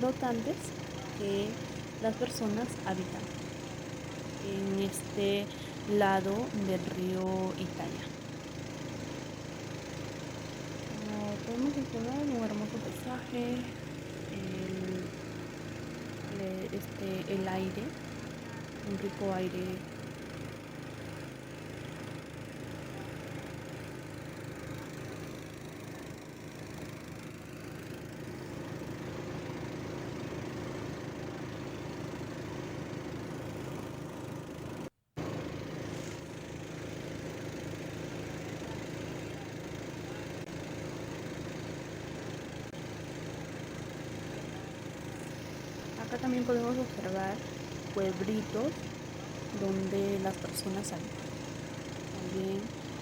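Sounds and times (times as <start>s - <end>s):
boat engine pulsing: 0.0s - 34.4s.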